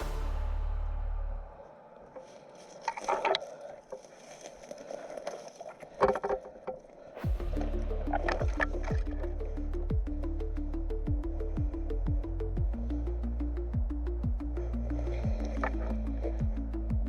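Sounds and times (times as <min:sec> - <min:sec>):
deep steady bass tone: 0:00.0 - 0:01.7, 0:07.2 - 0:17.0.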